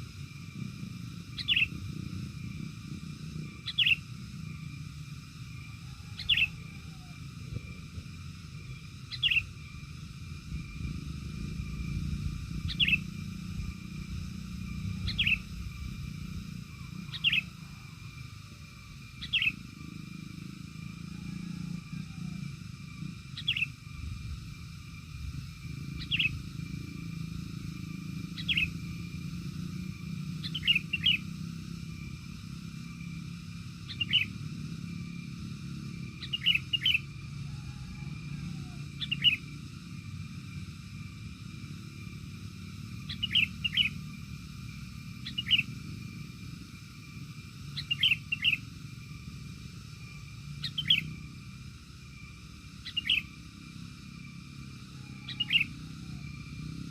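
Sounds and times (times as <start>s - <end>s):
steady low rumble: 0.0s - 54.8s
bird chirping: 1.3s - 2.7s, 3.3s - 18.3s, 18.9s - 24.5s, 25.3s - 33.2s, 33.8s - 39.8s, 43.0s - 44.2s, 45.0s - 46.2s, 47.6s - 48.8s, 50.0s - 51.6s, 52.7s - 53.6s, 54.5s - 56.8s.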